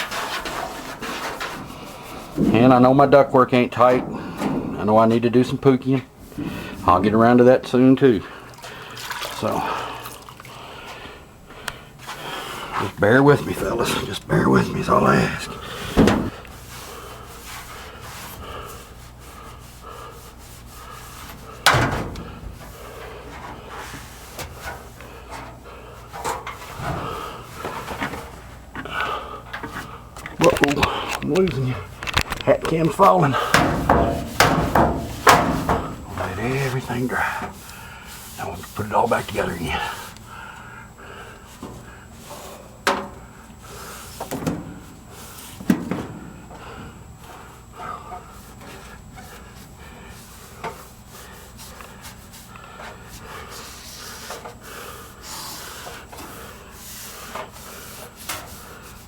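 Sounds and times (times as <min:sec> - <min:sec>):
hand rubbing inside metal duct: 0:00.0 - 0:07.4, 0:11.4 - 0:40.4, 0:41.5 - 0:59.0
loud knock on metal duct: 0:33.5 - 0:36.1.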